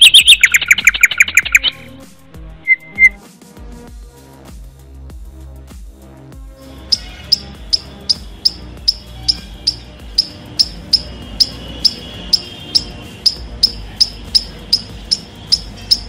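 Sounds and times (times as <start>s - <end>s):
sharp clicks: 0.0s - 1.8s, 6.9s - 16.0s
background music of low tones: 0.0s - 16.0s.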